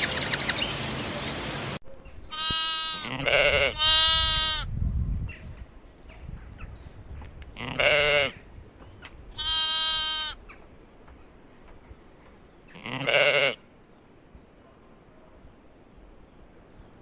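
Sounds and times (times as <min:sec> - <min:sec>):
sheep or goats bleating: 0:02.3 - 0:04.7, 0:07.6 - 0:08.3, 0:09.4 - 0:10.4, 0:12.8 - 0:13.6.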